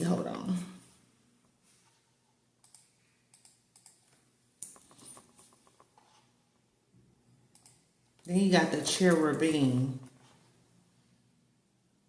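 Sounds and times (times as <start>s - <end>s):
faint keyboard typing: 2.6s - 6.3s, 7.4s - 8.3s.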